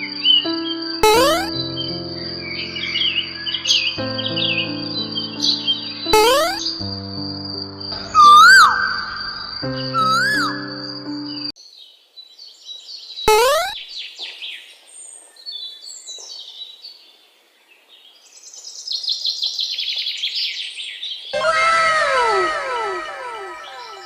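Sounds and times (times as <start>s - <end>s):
music phrase: 1.0s - 1.6s, 6.2s - 6.9s, 7.9s - 11.3s, 21.4s - 24.0s
falling whistled bird calls: 8.0s - 11.2s, 21.4s - 24.0s
birds singing: 8.0s - 24.0s
rising whistle-like glide: 8.1s - 10.8s, 21.4s - 24.0s.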